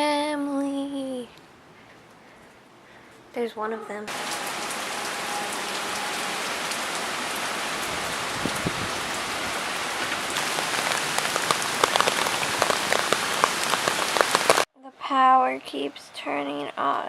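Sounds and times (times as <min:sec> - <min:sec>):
heavy rain falling: 0:04.1 - 0:14.7
raindrops tapping close by: 0:04.1 - 0:14.7.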